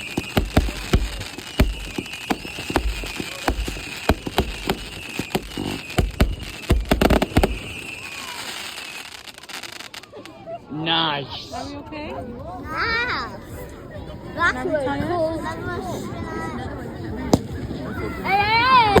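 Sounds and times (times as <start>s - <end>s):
fireworks bangs and crackles: 0.0s - 10.3s, 17.2s - 19.0s.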